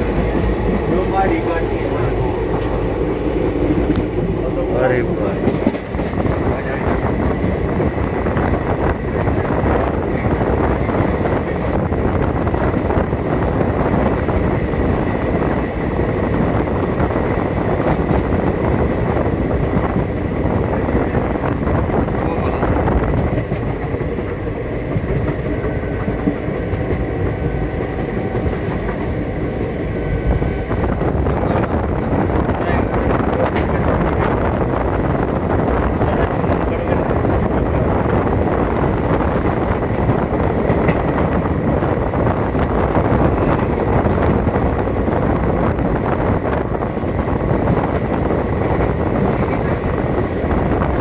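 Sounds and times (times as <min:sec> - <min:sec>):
train rumbling on track: 0:00.0 - 0:51.0.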